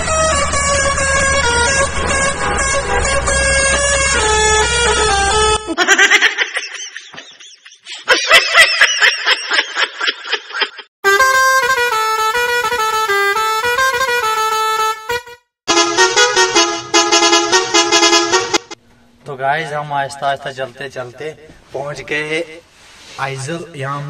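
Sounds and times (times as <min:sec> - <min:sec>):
truck musical horns playing tunes: 0:00.0 - 0:05.7, 0:11.0 - 0:18.9.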